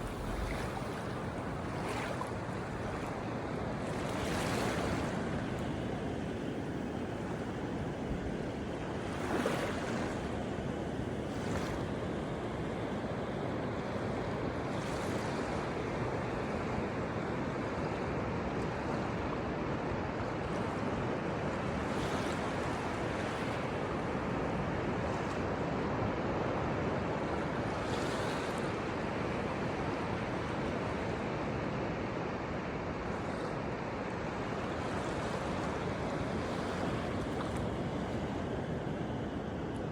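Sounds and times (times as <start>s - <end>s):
waves washing on shore: 0.0s - 3.1s.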